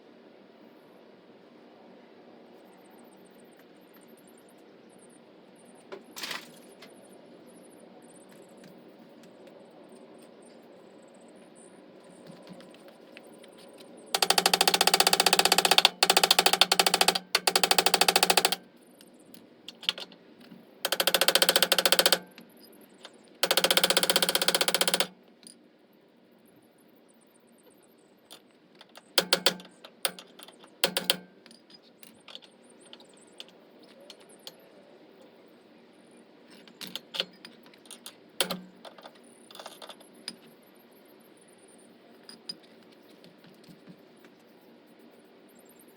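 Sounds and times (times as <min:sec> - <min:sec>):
impact wrench hammering: 0:14.2 - 0:18.6, 0:20.9 - 0:22.2, 0:23.4 - 0:25.1, 0:29.2 - 0:30.2, 0:30.8 - 0:31.2.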